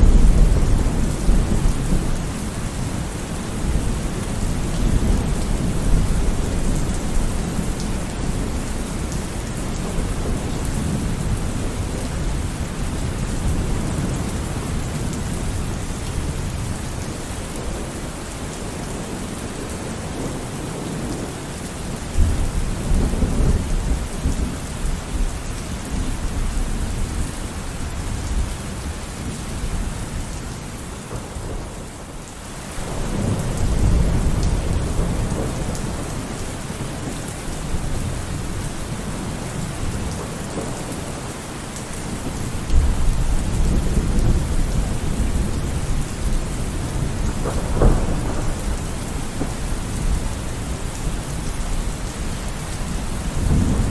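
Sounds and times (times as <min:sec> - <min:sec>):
thunder rumbling: 0:00.0 - 0:18.2, 0:32.8 - 0:41.2, 0:42.0 - 0:53.9
steady rain: 0:00.0 - 0:53.9.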